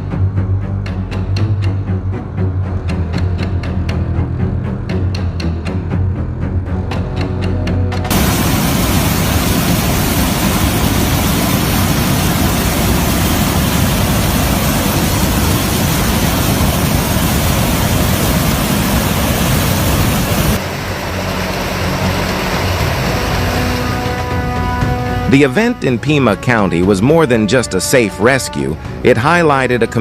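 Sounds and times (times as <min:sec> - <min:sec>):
loud steady rushing noise: 0:08.1 - 0:26.6.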